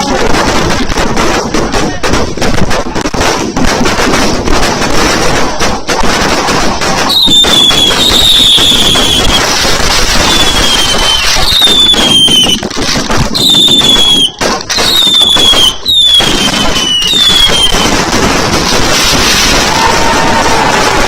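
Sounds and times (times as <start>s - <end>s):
fireworks crackling: 0.0s - 21.0s
firework whistles sliding down: 7.1s - 12.6s, 13.4s - 17.9s, 18.9s - 21.0s.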